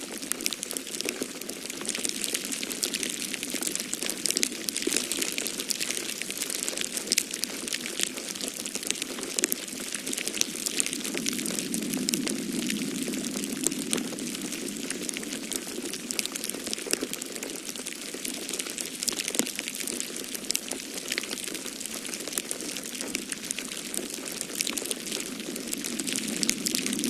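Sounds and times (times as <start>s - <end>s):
wood fire crackling: 0.0s - 27.0s
storm wind rushing: 10.3s - 16.3s, 24.9s - 27.0s.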